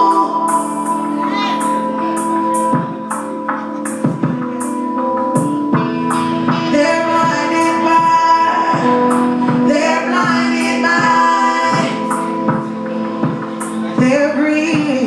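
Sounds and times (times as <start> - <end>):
female voice singing: 0.0 - 2.0, 6.7 - 12.4, 13.9 - 15.0
electronic beat with hi-hat hits: 0.0 - 15.0.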